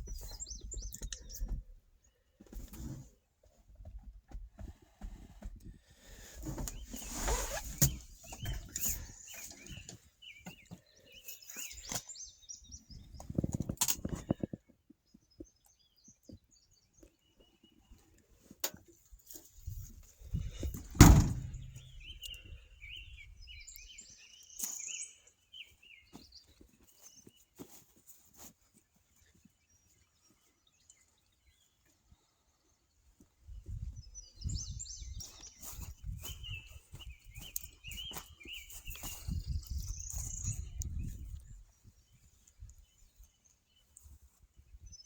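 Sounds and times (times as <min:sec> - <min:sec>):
small birds chirping: 0:00.0 - 0:03.0, 0:06.0 - 0:45.0
knocks and thumps: 0:20.8 - 0:21.8.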